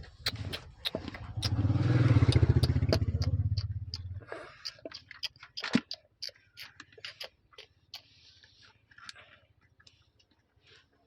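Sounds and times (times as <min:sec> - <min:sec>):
sharp clicks and ticks: 0:00.0 - 0:08.1
vehicle engine passing: 0:00.3 - 0:04.3.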